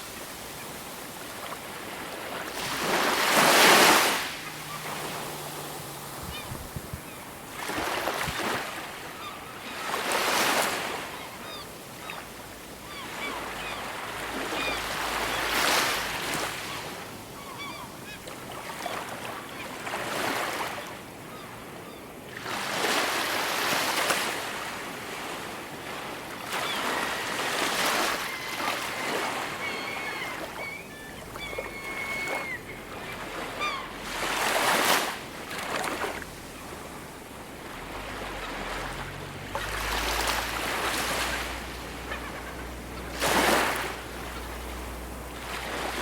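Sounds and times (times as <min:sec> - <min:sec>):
ocean waves breaking: 0:00.0 - 0:21.7, 0:22.3 - 0:46.0
faint bird calls: 0:02.8 - 0:16.0, 0:16.6 - 0:19.7, 0:27.8 - 0:35.0, 0:40.9 - 0:46.0.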